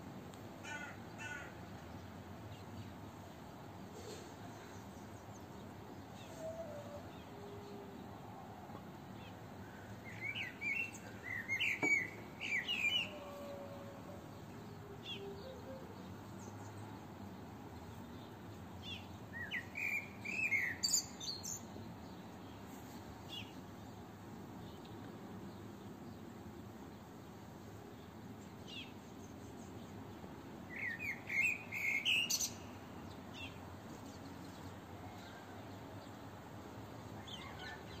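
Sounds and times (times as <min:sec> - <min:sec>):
faint outdoor hiss: 0:00.0 - 0:38.0
songbird chirping: 0:04.1 - 0:27.1.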